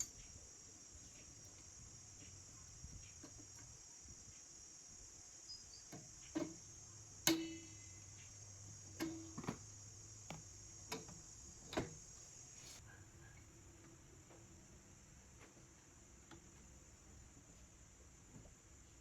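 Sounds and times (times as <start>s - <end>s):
steady high-pitched hiss: 0.0s - 19.0s
metallic ring: 7.3s - 8.2s.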